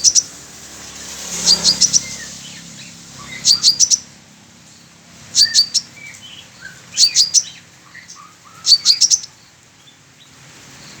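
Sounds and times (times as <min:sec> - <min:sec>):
bird chirping high: 0:00.0 - 0:00.3, 0:01.4 - 0:04.1, 0:05.3 - 0:10.0.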